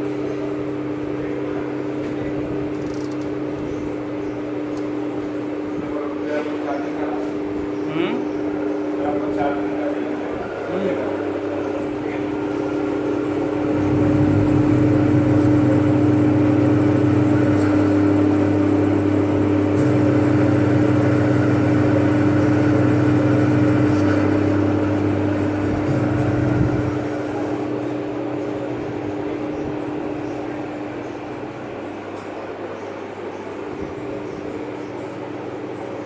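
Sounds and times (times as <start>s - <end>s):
deep machine drone: 5.8s - 36.0s
lathe motor hum: 7.3s - 36.0s.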